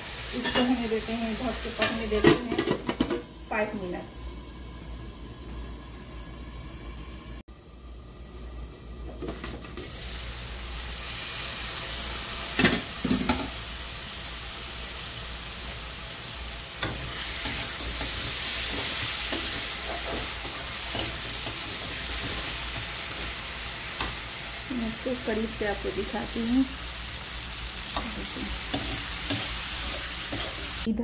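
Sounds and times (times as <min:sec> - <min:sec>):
food sizzling in a pan: 0:00.0 - 0:30.9
metal spatula scraping pan: 0:28.0 - 0:30.8.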